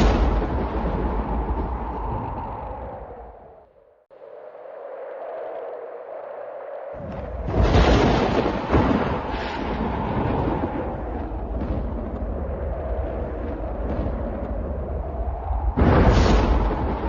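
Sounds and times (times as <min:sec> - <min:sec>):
thunder cracking and rumbling: 0:00.0 - 0:03.6, 0:07.0 - 0:17.0.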